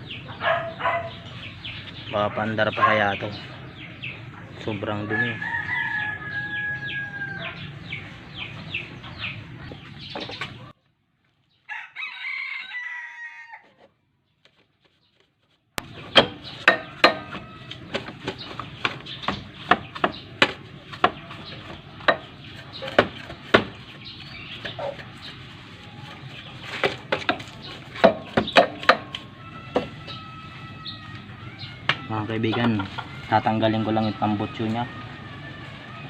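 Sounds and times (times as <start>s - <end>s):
rooster crowing and clucking: 4.9s - 8.7s, 11.6s - 13.9s, 15.8s - 19.2s, 25.7s - 36.0s.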